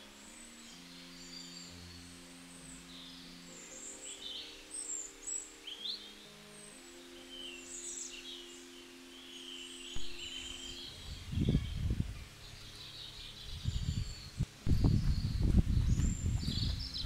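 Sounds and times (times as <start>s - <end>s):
small birds chirping: 0.0s - 17.0s
soft background music: 0.0s - 17.0s
low rumbles on microphone: 10.9s - 12.3s, 13.4s - 17.0s.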